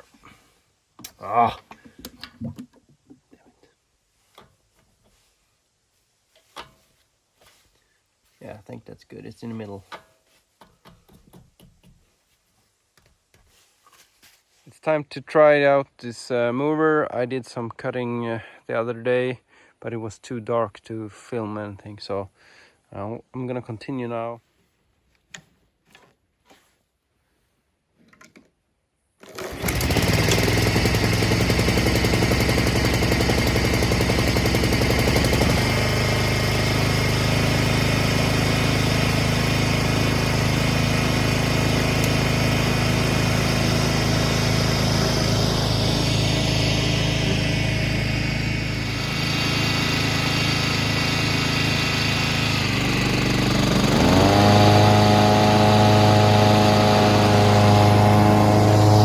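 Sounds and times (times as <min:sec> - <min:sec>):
lawnmower engine running: 0:29.2 - 0:59.0.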